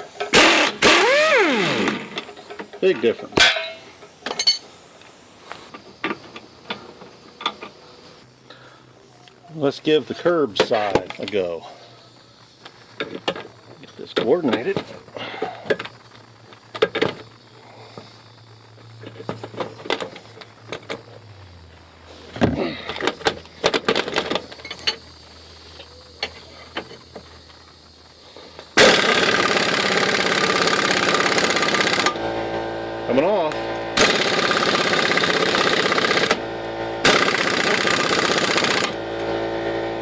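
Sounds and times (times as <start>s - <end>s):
impact wrench hammering: 28.8s - 32.2s, 34.0s - 36.4s, 37.0s - 39.0s.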